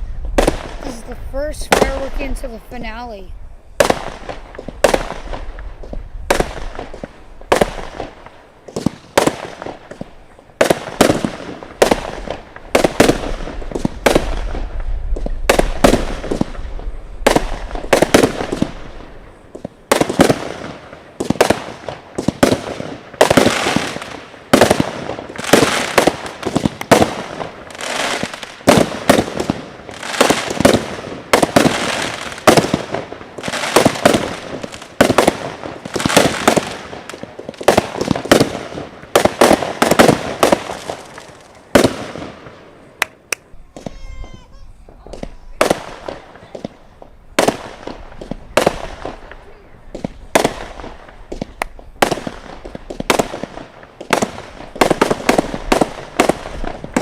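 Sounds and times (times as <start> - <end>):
fireworks bangs and crackle: 0.0 - 57.0.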